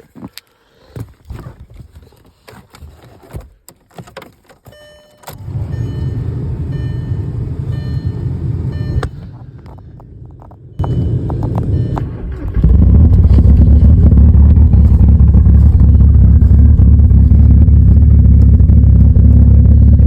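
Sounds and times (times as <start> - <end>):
diesel engine fast idle: 12.0 - 20.0.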